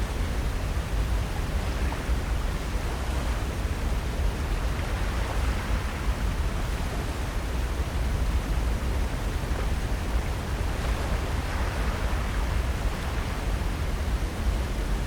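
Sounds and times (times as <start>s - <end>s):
wind rumbling on microphone: 0.0s - 15.0s
ocean surf: 9.4s - 14.9s.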